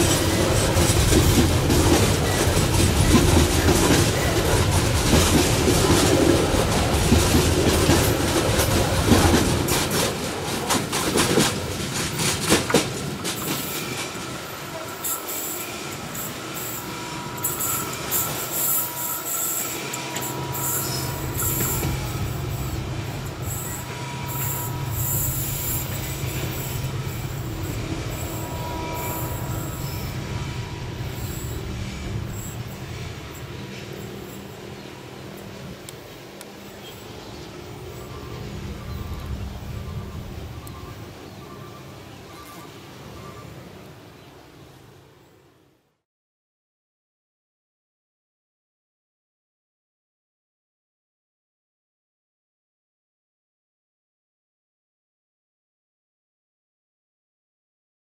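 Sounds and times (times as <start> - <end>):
freight train wheels clattering: 0.0 - 41.0.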